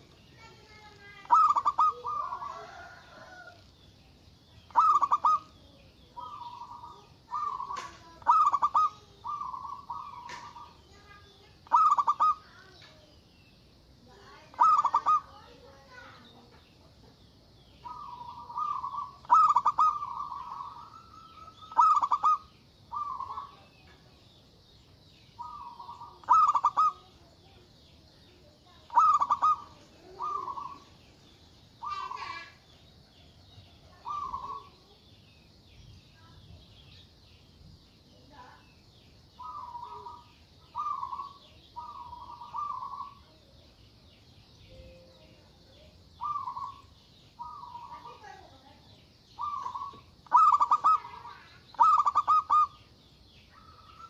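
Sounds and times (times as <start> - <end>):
dove cooing: 0.7 - 3.6, 4.7 - 12.7, 14.5 - 15.6, 17.8 - 23.7, 25.4 - 27.6, 28.7 - 31.0, 31.8 - 32.6, 33.9 - 34.9, 39.4 - 43.4, 46.2 - 48.5, 49.4 - 52.8.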